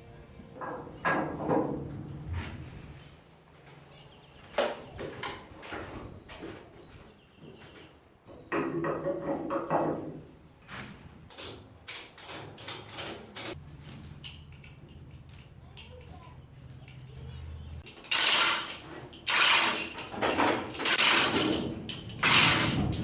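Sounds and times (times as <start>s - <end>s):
metal knocks and tool clatter: 7.4s - 23.0s
metal rattling: 12.1s - 23.0s.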